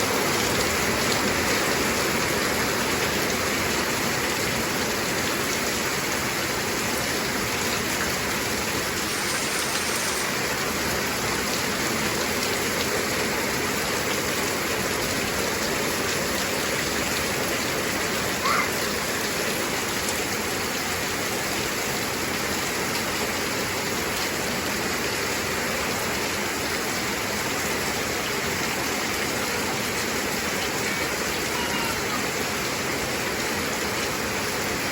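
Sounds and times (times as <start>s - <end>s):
heavy rain falling: 0.0s - 34.9s
brief rising chirp: 9.0s - 10.6s.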